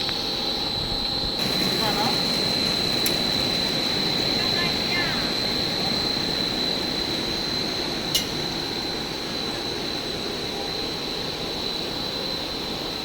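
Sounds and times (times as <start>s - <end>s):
high-pitched machine whine: 0.0s - 13.0s
production line machine noise: 0.0s - 13.0s
sharp click: 8.1s - 8.4s.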